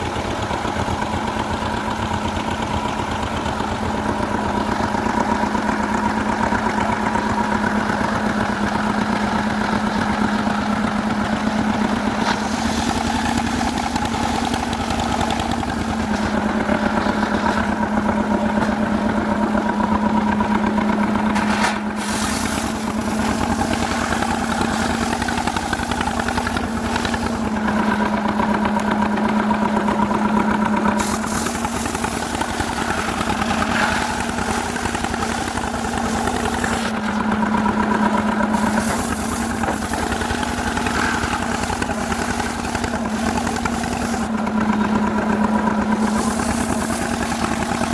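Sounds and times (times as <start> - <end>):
chainsaw cutting wood: 21.3 - 29.3, 30.8 - 37.3, 38.1 - 44.5, 45.9 - 47.9.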